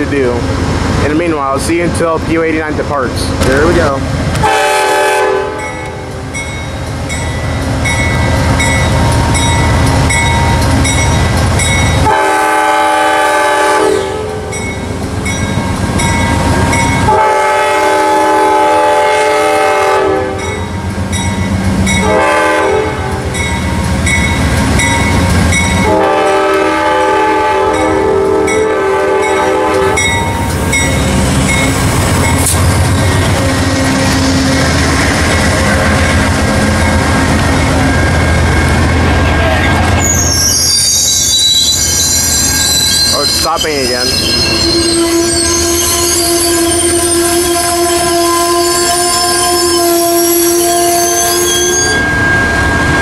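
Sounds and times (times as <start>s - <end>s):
locomotive air horn blasts: 4.4s - 5.7s, 12.0s - 14.3s, 17.1s - 20.5s, 22.0s - 23.1s, 25.8s - 30.0s, 44.6s - 52.1s.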